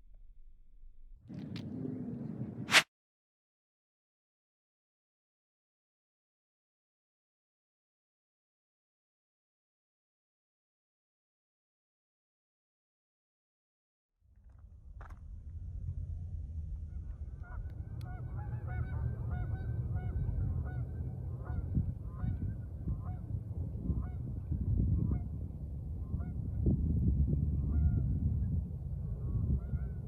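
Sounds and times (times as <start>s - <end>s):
steady low rumble: 0.0s - 2.8s, 14.4s - 30.0s.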